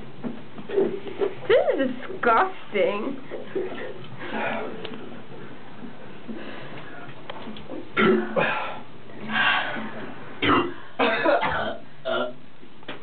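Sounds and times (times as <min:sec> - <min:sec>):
person coughing and clearing throat: 0:08.0 - 0:08.5, 0:10.4 - 0:12.4.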